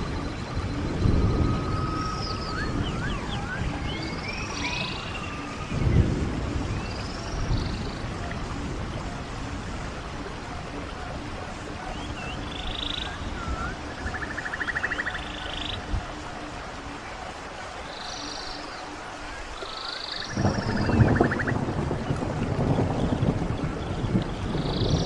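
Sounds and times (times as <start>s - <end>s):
stream rushing: 0.0s - 25.0s
birds whistling: 1.2s - 8.0s, 11.8s - 15.9s, 17.9s - 18.9s.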